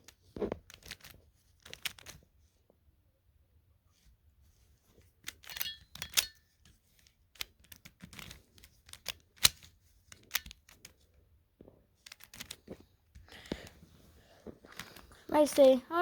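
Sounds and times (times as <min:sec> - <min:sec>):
puzzle cube clicking and rattling: 0:00.0 - 0:02.3, 0:05.2 - 0:11.1, 0:12.0 - 0:13.6.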